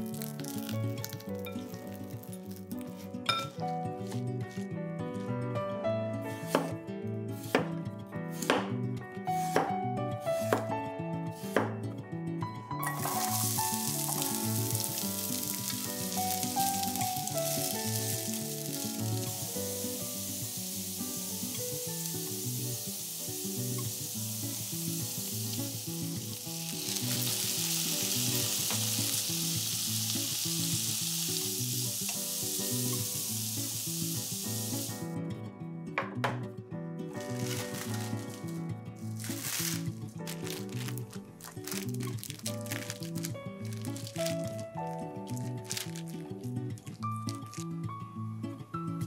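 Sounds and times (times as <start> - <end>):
carrots sizzling in oil: 0.0 - 4.2, 12.8 - 35.1, 37.2 - 46.5, 47.2 - 47.8.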